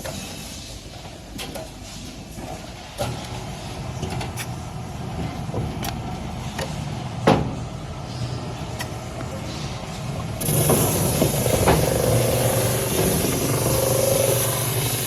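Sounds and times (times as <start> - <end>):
sanding machine humming: 10.4 - 15.0.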